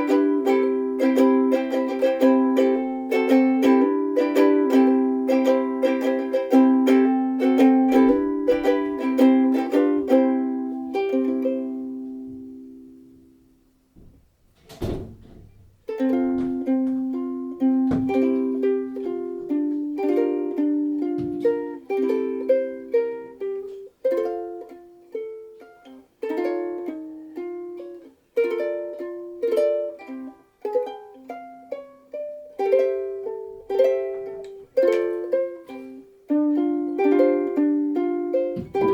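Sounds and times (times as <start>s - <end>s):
ukulele strummed chords: 0.0s - 14.2s, 15.4s - 38.9s
short thump: 14.0s - 16.6s, 17.9s - 18.2s, 38.5s - 38.9s.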